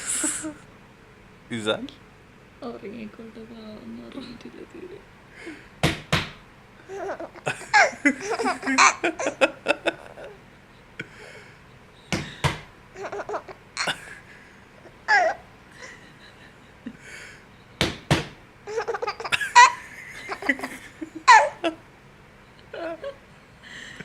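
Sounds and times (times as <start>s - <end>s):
sharp knocks: 5.8s - 6.4s, 17.8s - 18.4s
baby laughing: 6.8s - 10.4s, 13.0s - 14.0s, 14.8s - 15.9s, 18.7s - 21.8s.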